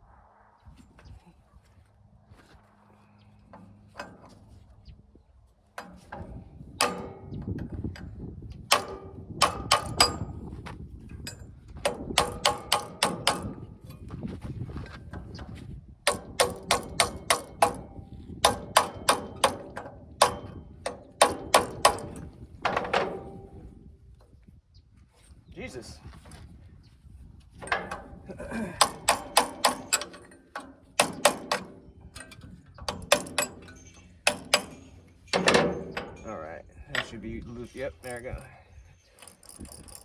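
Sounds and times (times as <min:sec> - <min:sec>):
hammer striking metal drift: 0:11.9 - 0:13.6, 0:28.8 - 0:36.2.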